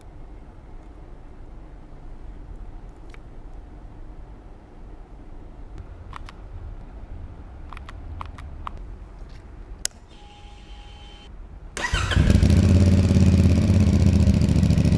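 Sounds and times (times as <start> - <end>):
electronic tone: 10.1 - 11.3
motorcycle engine starting and idling: 11.8 - 14.9.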